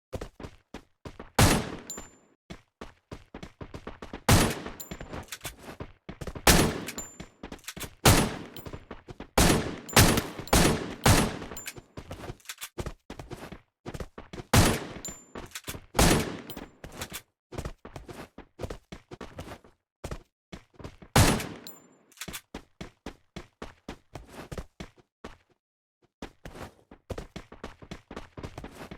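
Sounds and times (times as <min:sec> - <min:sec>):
sharp knocks and impacts: 0:09.4 - 0:11.7.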